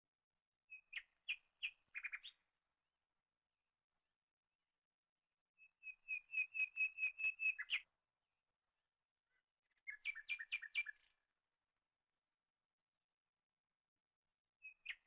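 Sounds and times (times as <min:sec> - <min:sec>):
bird whistling repeated notes: 0:05.8 - 0:07.9.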